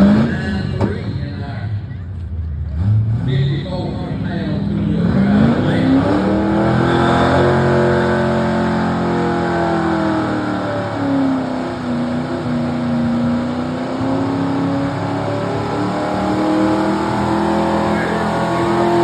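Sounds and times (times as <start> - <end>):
pickup truck engine under load: 6.1 - 19.0.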